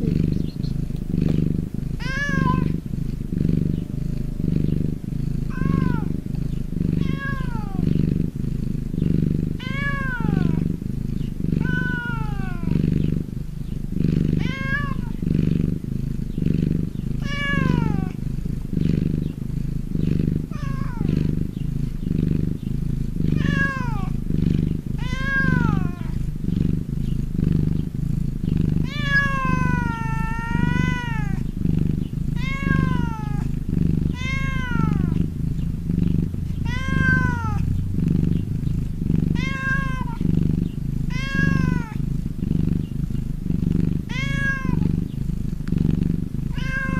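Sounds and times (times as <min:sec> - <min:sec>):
cat purring: 0:00.0 - 0:46.9
cat meowing: 0:02.0 - 0:02.8, 0:05.5 - 0:06.2, 0:07.0 - 0:07.9, 0:09.6 - 0:10.6, 0:11.6 - 0:12.8, 0:14.4 - 0:15.2, 0:17.2 - 0:18.2, 0:20.5 - 0:21.1, 0:23.4 - 0:24.1, 0:25.0 - 0:26.2, 0:28.8 - 0:31.5, 0:32.4 - 0:33.5, 0:34.1 - 0:35.2, 0:36.5 - 0:37.7, 0:39.3 - 0:40.3, 0:41.1 - 0:42.0, 0:44.1 - 0:44.9, 0:46.5 - 0:46.9.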